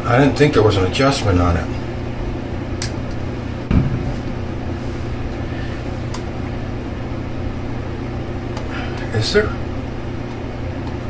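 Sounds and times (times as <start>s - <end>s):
low mechanical hum: 0.0s - 11.0s
dull thump: 3.7s - 4.4s.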